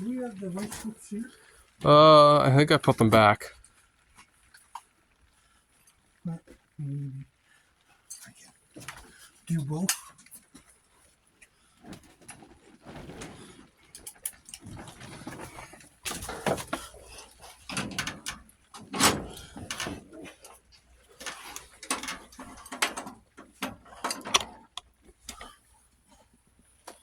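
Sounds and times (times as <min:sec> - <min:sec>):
hand tools clanking on metal: 0:14.0 - 0:25.6.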